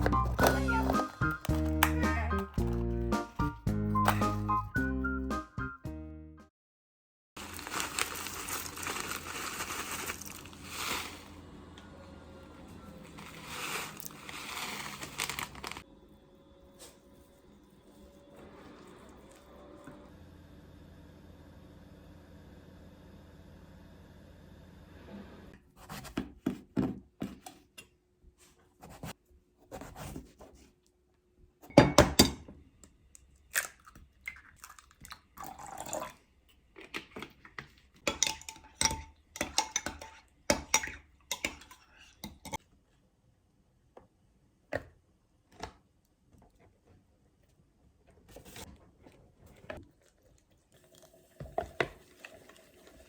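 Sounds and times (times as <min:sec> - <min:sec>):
dishes and utensils clinking: 0:38.0 - 0:42.6.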